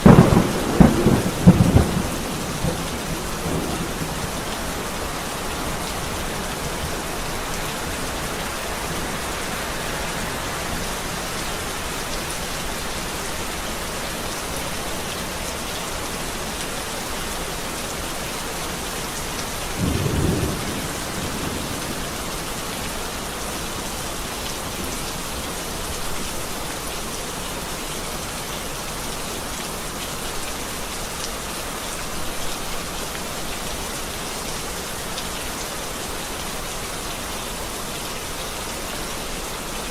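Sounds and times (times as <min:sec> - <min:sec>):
low rumble of thunder: 0:00.0 - 0:11.9, 0:19.6 - 0:23.5
steady rain falling: 0:00.0 - 0:39.9.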